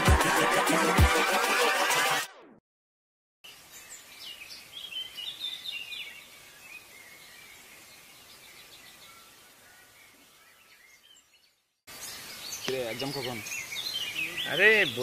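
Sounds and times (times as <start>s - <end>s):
faint outdoor hiss: 3.5s - 15.0s
small birds chirping: 3.5s - 15.0s.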